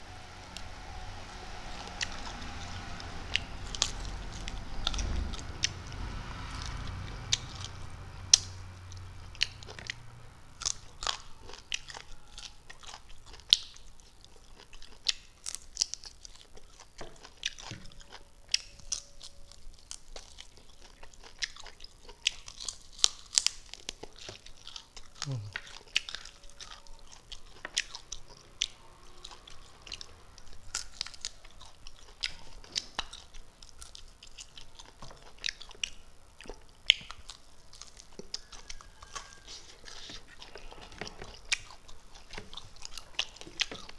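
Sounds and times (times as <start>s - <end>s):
low hum: 0.0s - 14.6s
chewing smacks and crunches: 10.6s - 43.9s.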